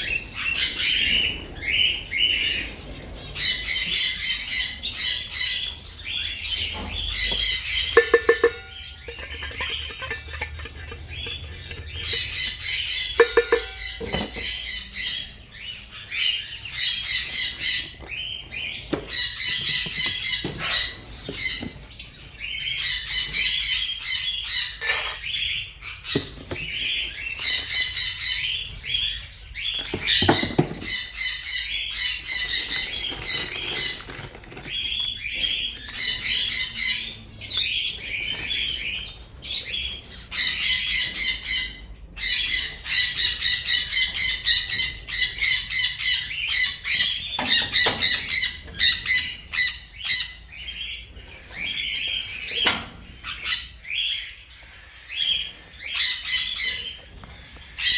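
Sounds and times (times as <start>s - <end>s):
parrots squawking: 6.4s - 15.6s, 24.5s - 25.6s.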